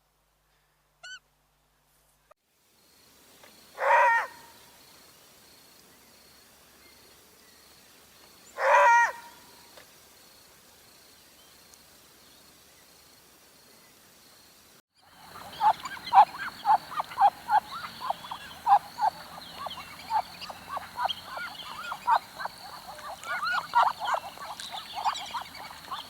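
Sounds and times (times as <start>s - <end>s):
faint outdoor background: 0.0s - 26.0s
faint high chirp: 15.1s - 26.0s
large bird calling: 15.1s - 26.0s.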